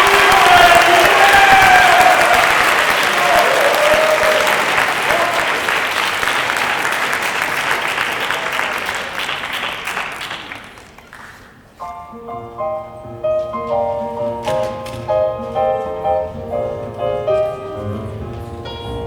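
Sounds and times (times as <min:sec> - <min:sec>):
audience applause: 0:00.0 - 0:11.8
piano playing: 0:11.8 - 0:19.0.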